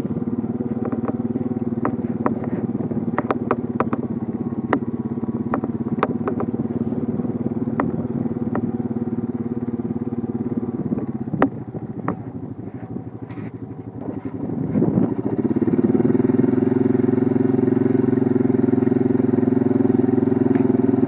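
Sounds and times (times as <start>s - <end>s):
sharp clicks and rattles: 0.0s - 15.4s
engine running: 0.0s - 21.0s.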